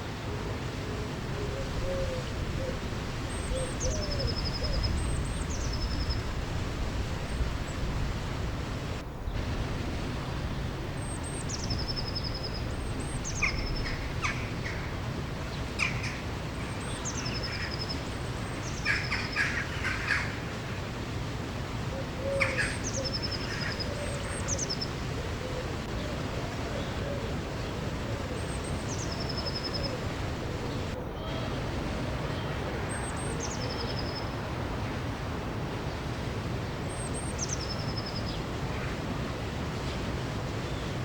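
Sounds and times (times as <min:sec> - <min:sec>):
flowing water: 0:00.0 - 0:41.0
birds chirping: 0:10.2 - 0:15.0.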